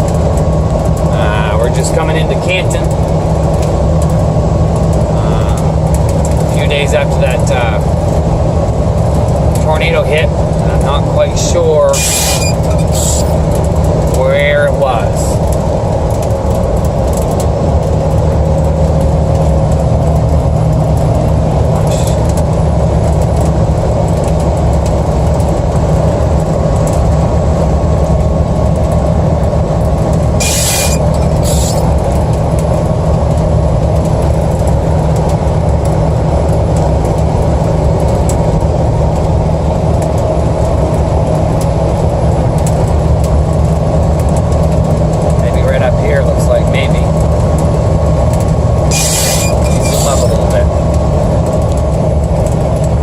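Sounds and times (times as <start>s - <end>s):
car road and engine drone: 0.0s - 53.0s
brief hissing: 30.4s - 31.8s.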